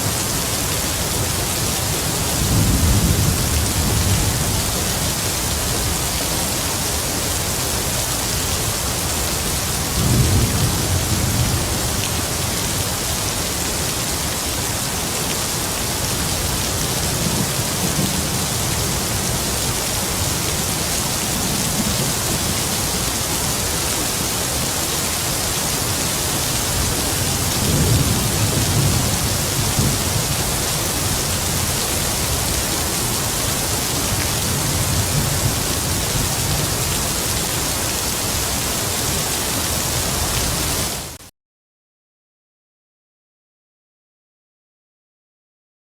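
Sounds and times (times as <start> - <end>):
heavy rain: 0.0 - 41.2.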